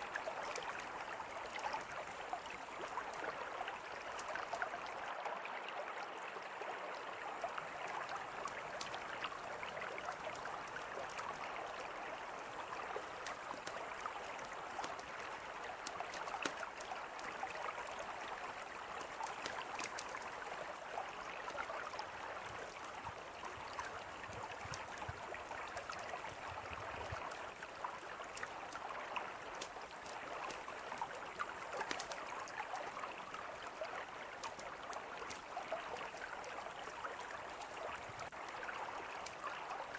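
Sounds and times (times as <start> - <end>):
campfire crackling: 8.3 - 18.0, 18.6 - 20.5, 28.3 - 32.3, 34.4 - 36.6.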